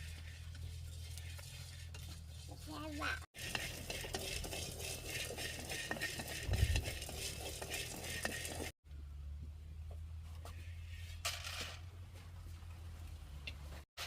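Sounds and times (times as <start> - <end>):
utensil scraping a pot: 0.0 - 8.8.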